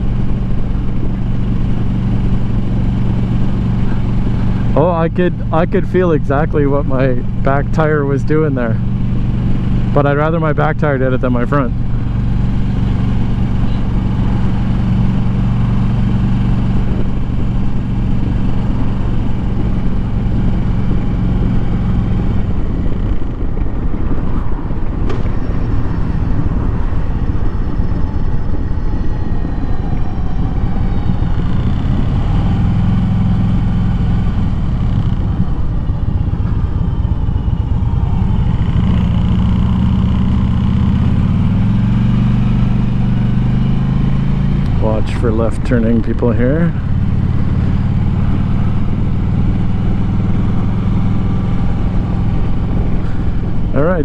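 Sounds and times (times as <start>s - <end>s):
motorcycle engine running: 0.0s - 54.0s
road and wind noise: 0.0s - 54.0s.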